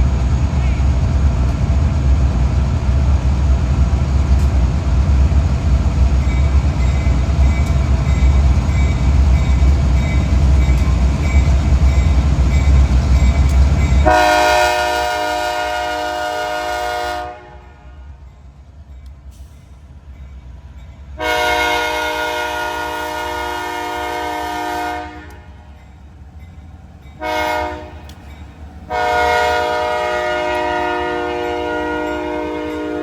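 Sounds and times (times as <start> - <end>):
train rumbling past: 0.0 - 33.0
locomotive horn blowing: 14.0 - 18.2, 21.2 - 25.5, 27.2 - 28.1, 28.9 - 33.0.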